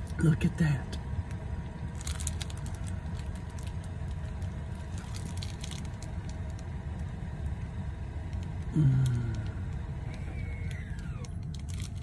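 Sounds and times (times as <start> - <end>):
low rumble inside a car: 0.0 - 12.0
plastic wrap crinkling: 1.9 - 6.7, 11.4 - 12.0.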